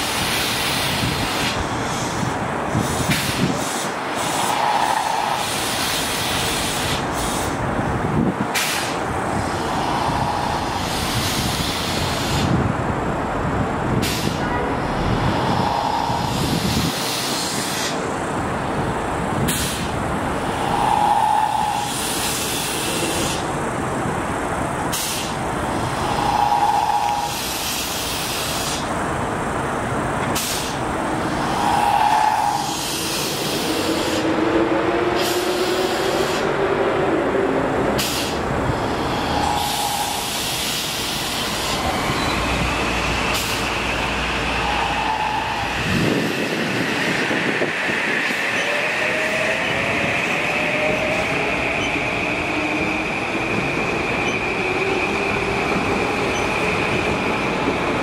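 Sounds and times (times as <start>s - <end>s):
train wheels rumbling: 0.0s - 58.0s
short air hisses: 2.8s - 7.6s, 8.6s - 9.0s, 14.0s - 14.4s, 19.5s - 19.9s, 24.9s - 25.4s, 30.3s - 30.8s, 38.0s - 38.4s, 39.1s - 41.9s, 43.3s - 43.8s.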